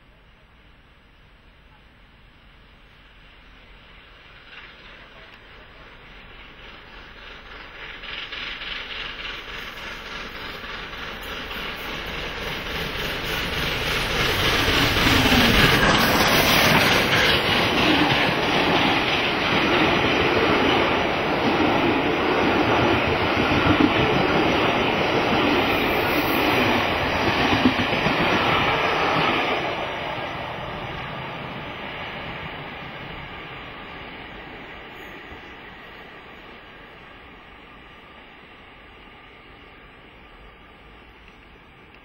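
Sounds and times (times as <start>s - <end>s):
train wheels rumbling and clattering: 3.0s - 38.1s.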